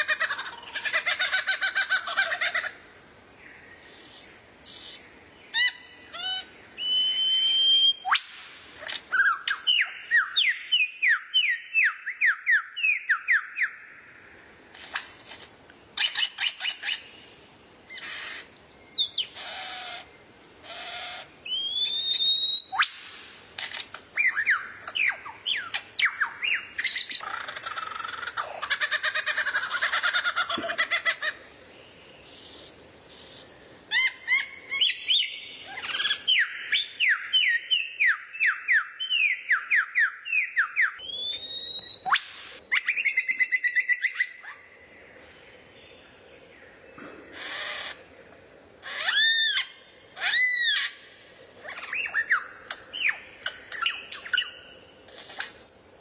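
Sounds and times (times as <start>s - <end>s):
songbird whistled notes: 6.8s - 8.3s, 21.4s - 23.1s, 32.3s - 44.4s, 55.4s - 56.0s.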